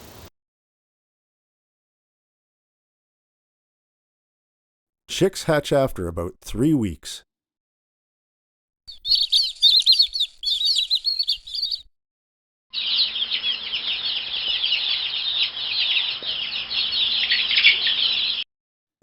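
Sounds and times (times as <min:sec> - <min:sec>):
baby chicks peeping: 0:08.9 - 0:11.9, 0:12.8 - 0:18.4.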